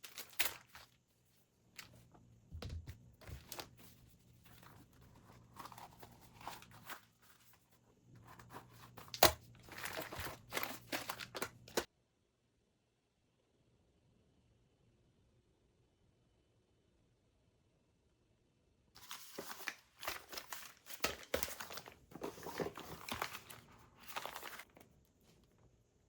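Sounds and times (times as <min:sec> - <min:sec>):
belongings rustling and crinkling: 0:00.0 - 0:11.9, 0:19.0 - 0:25.6.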